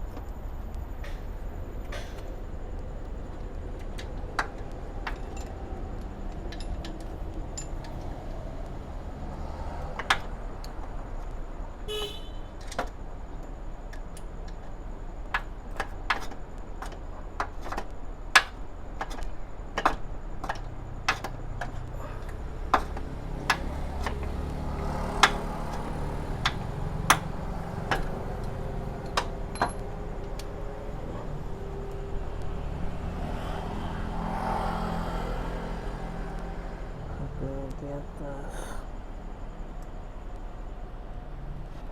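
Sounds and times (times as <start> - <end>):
low vehicle-like drone: 0.0 - 11.8, 17.9 - 41.9
metallic clicks of hand tools: 15.4 - 30.5.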